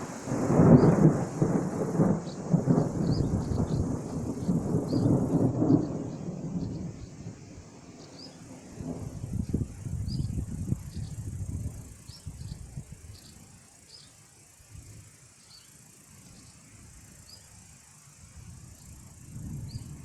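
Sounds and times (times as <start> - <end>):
thunder rumbling: 0.0 - 7.7, 8.4 - 11.9.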